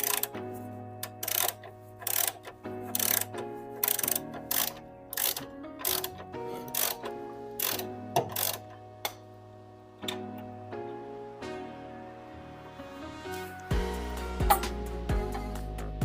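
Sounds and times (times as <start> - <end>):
ratchet wrench clicking: 0.0 - 0.4, 1.1 - 7.0, 7.6 - 8.6
background music: 0.0 - 16.0.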